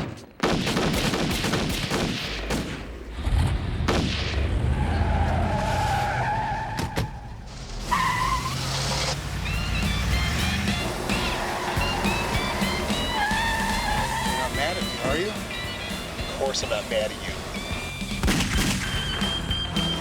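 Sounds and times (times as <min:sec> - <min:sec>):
gunshots: 0:00.0 - 0:04.8, 0:10.8 - 0:20.0
car engine rumbling: 0:03.0 - 0:20.0
tires squealing: 0:04.3 - 0:20.0
music: 0:09.3 - 0:20.0.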